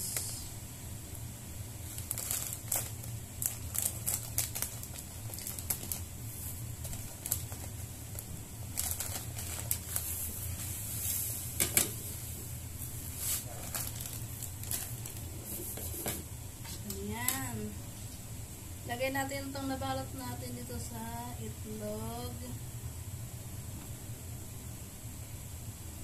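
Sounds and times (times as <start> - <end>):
plastic bag crinkling: 1.8 - 10.6, 13.1 - 16.0.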